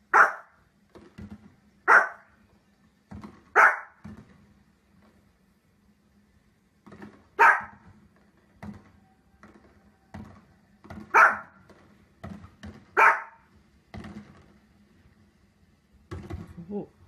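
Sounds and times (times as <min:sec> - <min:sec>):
small dog barking: 0:00.1 - 0:00.6, 0:01.8 - 0:02.3, 0:03.5 - 0:04.0, 0:07.4 - 0:07.8, 0:11.1 - 0:11.6, 0:12.9 - 0:13.5.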